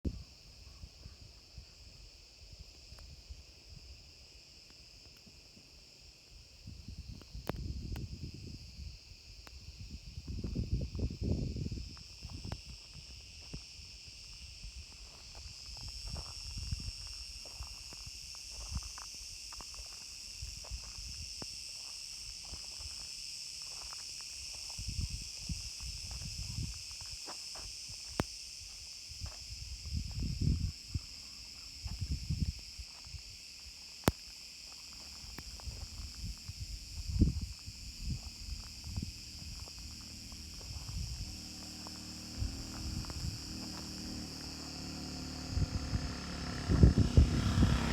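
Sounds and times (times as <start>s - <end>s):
insects shrilling: 7.0s - 47.9s
low rumbles: 35.4s - 47.9s.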